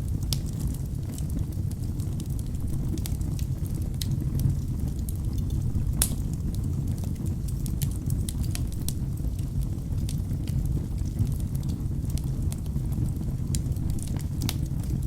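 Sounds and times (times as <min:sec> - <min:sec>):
fire flames rumbling: 0:00.0 - 0:15.0
logs crackling and popping: 0:00.0 - 0:15.0.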